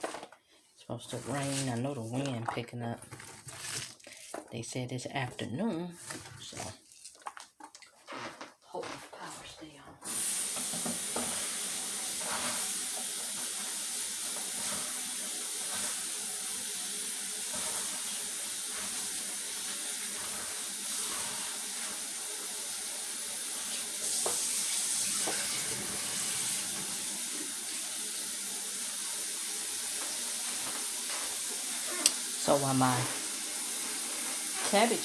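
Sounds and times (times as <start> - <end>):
tap running into a bowl: 10.5 - 11.5, 24.1 - 24.5, 25.2 - 25.6.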